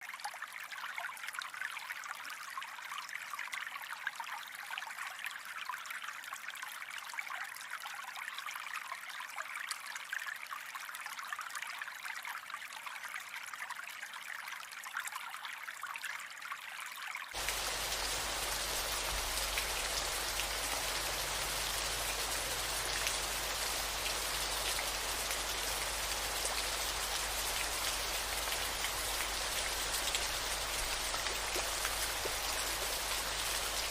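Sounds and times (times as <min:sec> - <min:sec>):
rain falling: 0:17.4 - 0:33.9.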